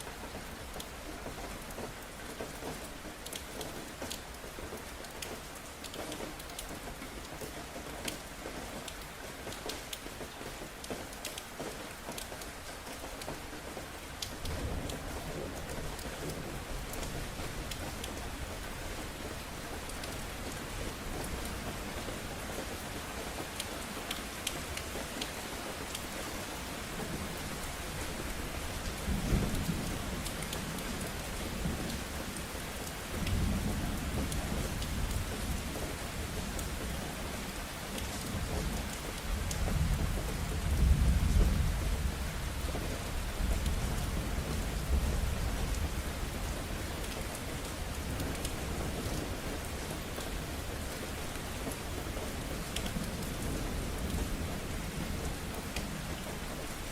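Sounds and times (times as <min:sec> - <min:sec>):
rain drops pattering on hard surface: 0:00.0 - 0:56.9
low rumble of thunder: 0:26.9 - 0:37.6, 0:38.2 - 0:56.9.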